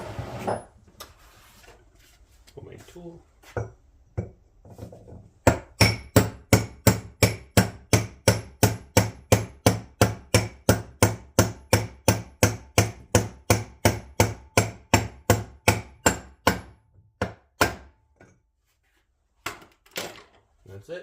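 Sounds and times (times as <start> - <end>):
hammer striking metal: 5.5 - 17.9.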